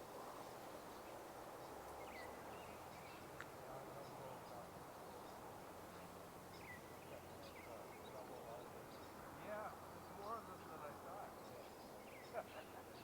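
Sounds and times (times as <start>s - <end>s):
low outdoor hiss: 0.0s - 13.0s.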